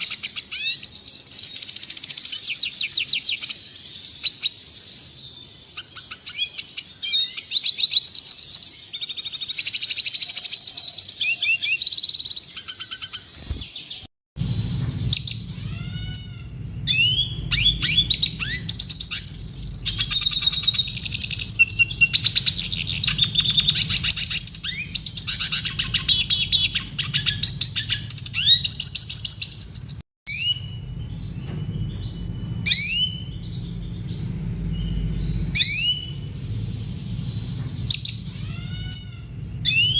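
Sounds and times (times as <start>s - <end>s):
bird twittering song: 0.0s - 39.9s
low hum: 14.4s - 39.9s.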